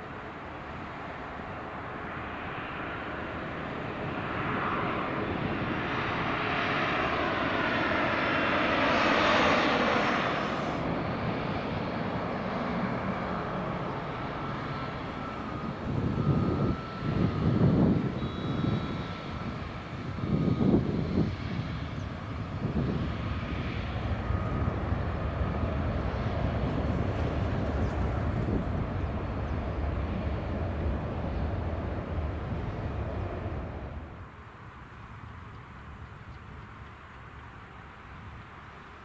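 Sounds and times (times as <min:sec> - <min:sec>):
airliner passing: 0:00.0 - 0:39.0
low uneven rumbling bursts: 0:21.2 - 0:34.5.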